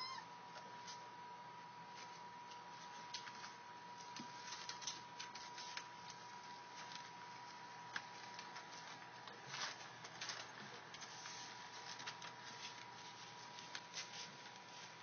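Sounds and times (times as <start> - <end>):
faint high tone: 0.0 - 0.3.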